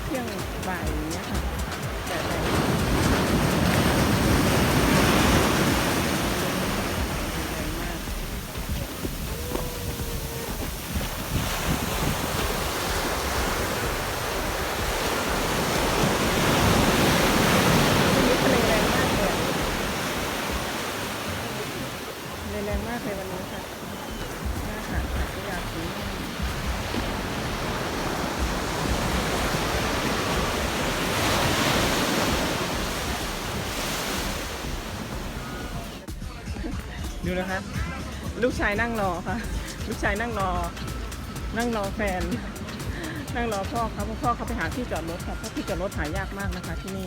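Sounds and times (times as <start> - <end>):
wind rumbling on microphone: 0.0 - 36.1
waves breaking on beach: 0.0 - 47.0.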